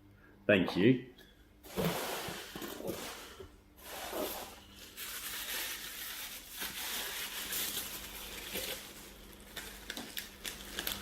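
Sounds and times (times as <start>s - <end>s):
packaging crinkling: 4.2s - 11.0s.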